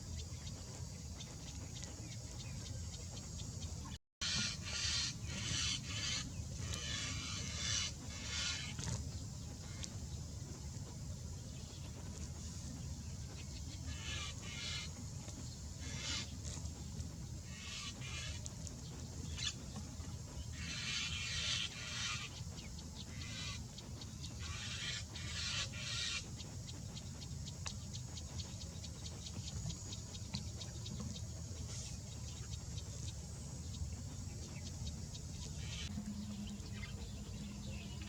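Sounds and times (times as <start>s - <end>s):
bird chattering calls: 4.2s - 9.0s, 13.8s - 15.0s, 15.8s - 16.6s, 17.4s - 18.4s, 20.5s - 23.7s, 24.4s - 26.3s
low rumble: 26.6s - 38.0s.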